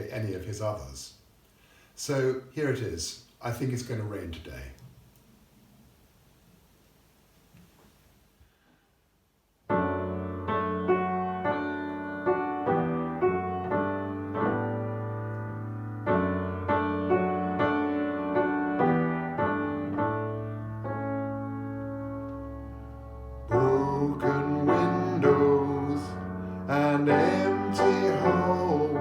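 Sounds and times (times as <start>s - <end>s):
solo piano ballad: 9.7s - 29.0s.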